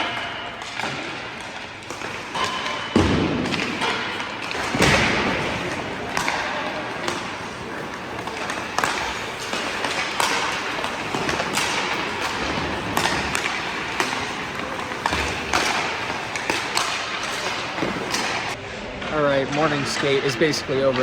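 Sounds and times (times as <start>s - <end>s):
pucks cracking off sticks and boards: 0.0s - 18.6s.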